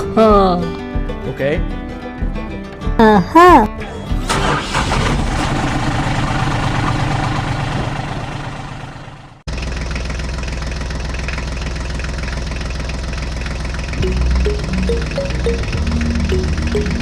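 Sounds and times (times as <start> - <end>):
deeper engine idling: 4.1 - 17.0
tractor engine idling: 4.2 - 17.0.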